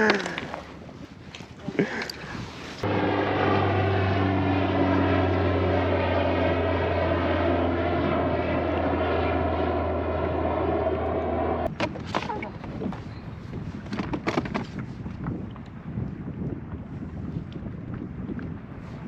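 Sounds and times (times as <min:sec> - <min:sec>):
loud motor drone: 0:02.8 - 0:11.7.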